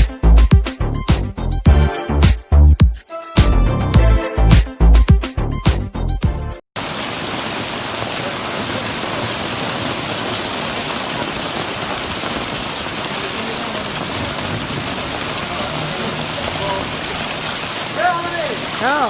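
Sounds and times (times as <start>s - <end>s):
hail and heavy rain: 6.8s - 19.0s.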